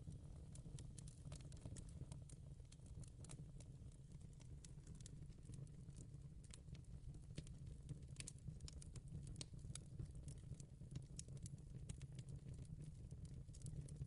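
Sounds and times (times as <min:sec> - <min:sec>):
fireplace crackling: 0:07.4 - 0:09.5.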